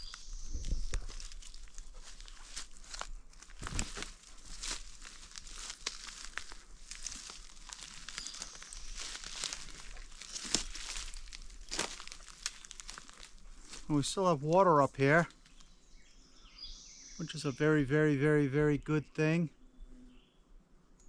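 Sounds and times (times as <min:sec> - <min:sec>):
dry rustling and crackling: 0:00.0 - 0:15.7.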